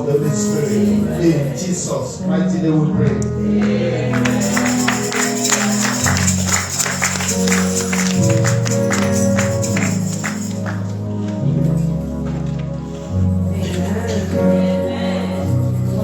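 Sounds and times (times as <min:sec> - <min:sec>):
worship band playing gospel music: 0:00.0 - 0:16.0
tambourine strikes: 0:04.2 - 0:10.8.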